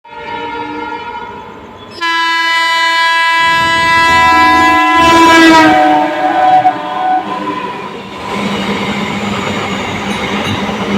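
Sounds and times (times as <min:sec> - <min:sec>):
locomotive horn blast: 0:00.0 - 0:01.4, 0:02.0 - 0:08.0
train rumble: 0:02.5 - 0:10.9.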